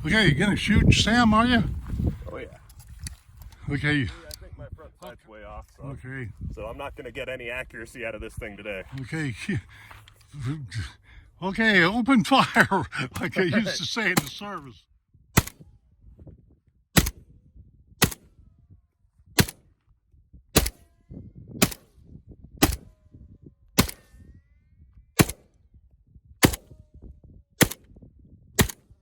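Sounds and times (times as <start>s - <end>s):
rifle shots with echo: 15.4s - 15.6s, 17.0s - 17.2s, 18.0s - 18.3s, 19.4s - 19.6s, 20.6s - 20.8s, 21.6s - 21.9s, 22.6s - 22.9s, 23.8s - 24.1s, 25.2s - 25.4s, 26.4s - 26.7s, 27.6s - 27.8s, 28.6s - 28.9s.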